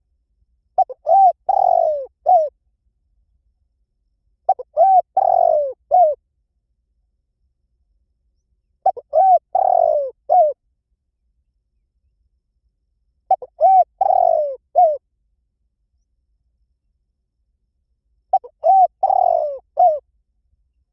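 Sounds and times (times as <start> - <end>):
dove cooing: 0.8 - 2.5, 4.5 - 6.2, 8.8 - 10.6, 13.3 - 15.0, 18.3 - 20.0.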